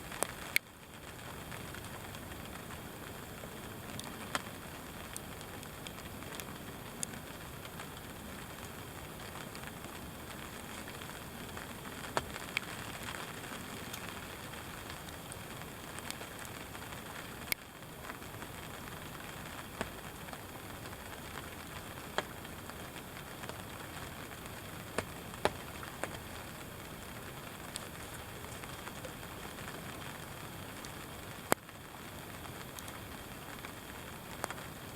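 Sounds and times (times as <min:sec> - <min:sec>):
light rain falling: 0:00.0 - 0:34.9.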